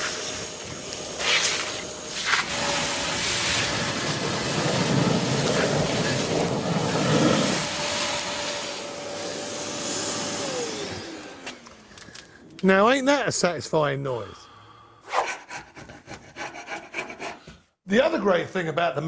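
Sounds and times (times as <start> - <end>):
vacuum slurping liquid: 0.0 - 9.0
vacuum cleaner motor whine: 0.0 - 12.3.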